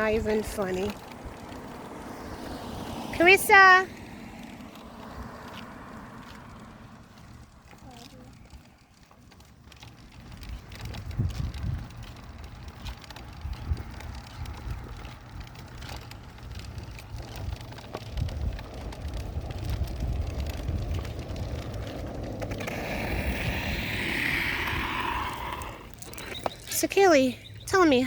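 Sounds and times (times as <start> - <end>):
wind buffeting microphone: 0.0 - 7.7, 9.9 - 28.0
rushing noise: 21.6 - 26.0.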